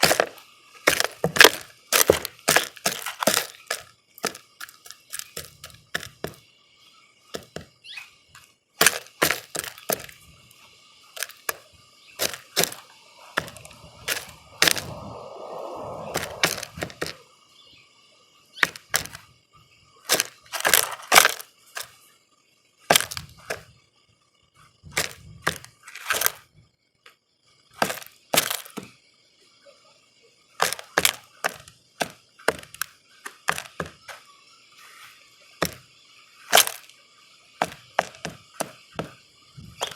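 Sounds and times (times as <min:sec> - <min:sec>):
rustling scrabble: 0:00.0 - 0:06.4, 0:08.8 - 0:10.2, 0:11.1 - 0:11.6, 0:12.2 - 0:15.0, 0:20.1 - 0:22.0, 0:30.6 - 0:34.2
beaks pecking and tapping feeder: 0:00.0 - 0:06.5, 0:07.3 - 0:10.2, 0:11.0 - 0:14.9, 0:18.6 - 0:19.2, 0:22.9 - 0:23.6, 0:25.0 - 0:26.3, 0:27.8 - 0:28.9, 0:30.6 - 0:34.2, 0:35.6 - 0:35.8, 0:37.6 - 0:39.2.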